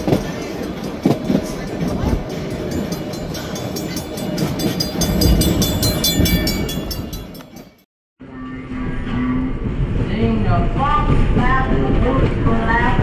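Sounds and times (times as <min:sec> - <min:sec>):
train rumbling and clicking: 0:00.0 - 0:07.9, 0:08.7 - 0:13.0.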